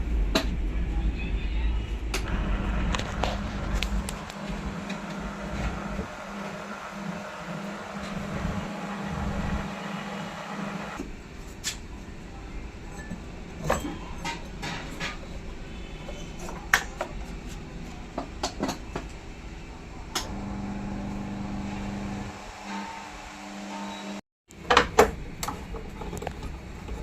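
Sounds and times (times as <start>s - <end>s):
washing machine motor humming: 2.2s - 11.0s, 20.1s - 24.2s.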